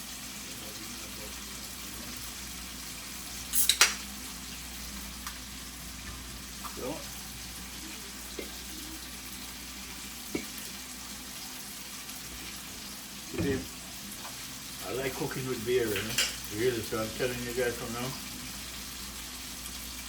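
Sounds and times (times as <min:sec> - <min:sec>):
food sizzling in a pan: 0:00.0 - 0:20.0
utensil clicking against pan: 0:03.6 - 0:04.0.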